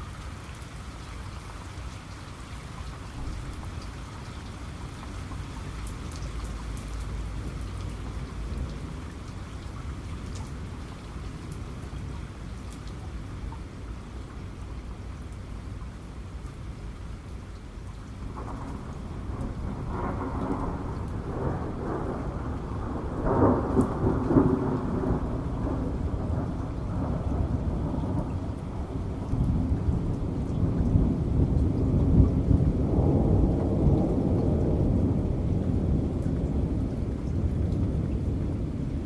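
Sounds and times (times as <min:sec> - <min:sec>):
steady rain: 0:00.0 - 0:39.0
thunder rumbling: 0:18.2 - 0:39.0.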